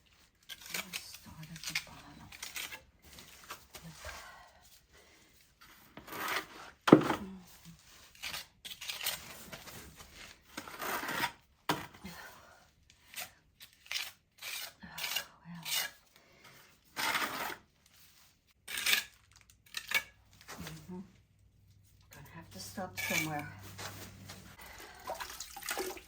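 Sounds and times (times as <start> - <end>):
gritty scraping on hard surface: 5.6 - 7.2, 7.8 - 12.0, 13.1 - 21.1, 21.8 - 24.9.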